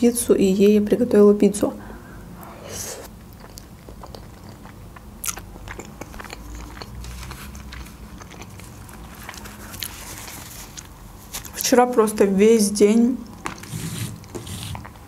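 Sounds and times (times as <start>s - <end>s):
woman chewing with mouth smacks: 3.0s - 11.6s.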